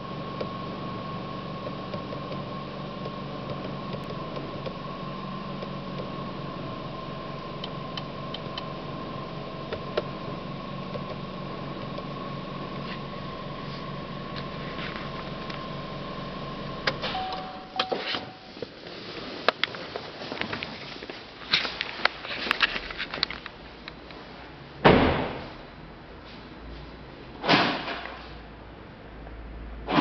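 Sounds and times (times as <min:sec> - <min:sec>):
car engine idling: 0:00.0 - 0:17.8
high whine: 0:00.0 - 0:19.7.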